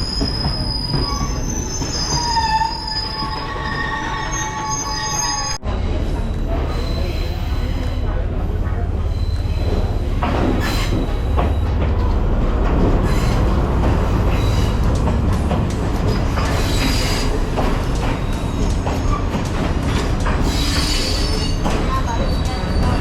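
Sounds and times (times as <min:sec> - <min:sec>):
metallic wheel squeals: 0:00.0 - 0:05.6
train rumbling on rails: 0:00.0 - 0:23.0.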